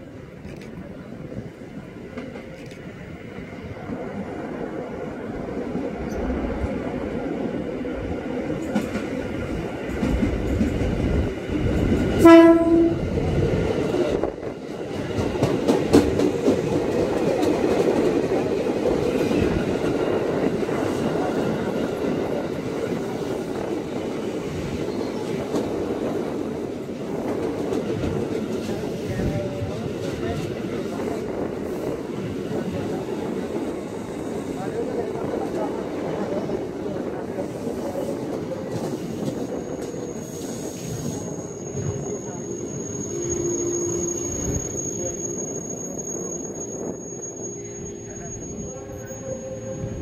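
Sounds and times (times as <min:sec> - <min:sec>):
electric train running past: 0:00.0 - 0:50.0
train horn blast: 0:12.2 - 0:13.2.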